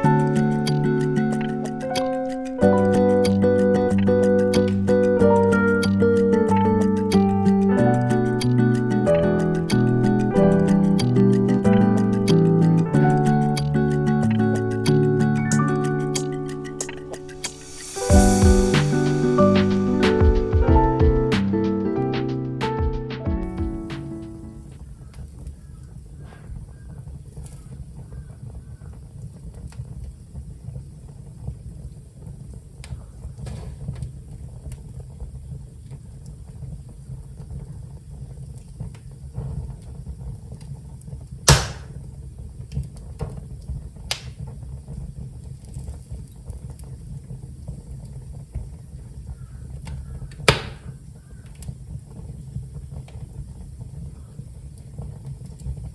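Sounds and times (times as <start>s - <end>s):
fire crackles: 0.0s - 20.6s, 23.9s - 55.9s
fire rumbling: 24.3s - 55.9s
loud sharp pops: 41.5s - 42.0s, 44.1s - 44.4s, 50.4s - 51.0s.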